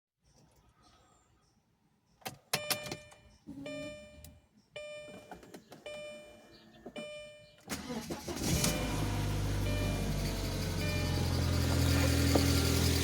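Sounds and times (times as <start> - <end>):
dashboard warning chime: 2.6 - 12.2.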